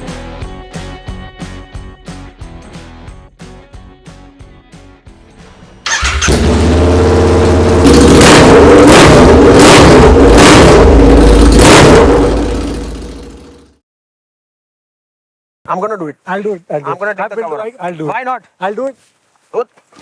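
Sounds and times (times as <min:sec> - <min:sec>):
motorcycle engine revving: 0:05.8 - 0:13.8.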